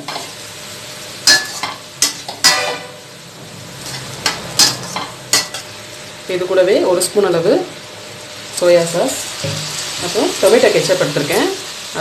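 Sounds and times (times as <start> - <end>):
food sizzling in oil: 0.0 - 12.0
ladle scraping and clanking on pan: 1.3 - 3.0.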